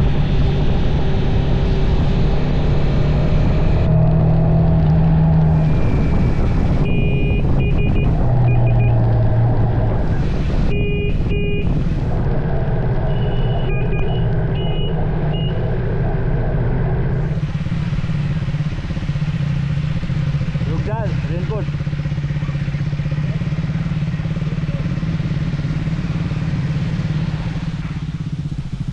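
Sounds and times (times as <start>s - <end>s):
motorcycle engine running: 0.0s - 28.9s
horn short beeps: 6.0s - 9.0s, 10.7s - 11.8s, 13.1s - 15.6s.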